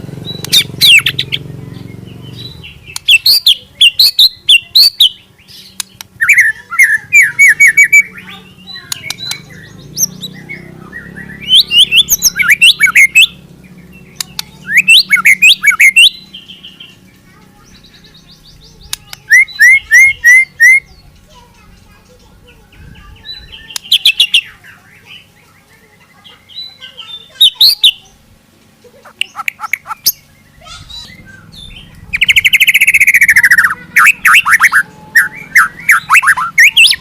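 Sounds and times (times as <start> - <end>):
songbird whistling fast phrases: 9.2 - 13.4, 14.6 - 16.2, 19.3 - 20.9, 29.2 - 37.0.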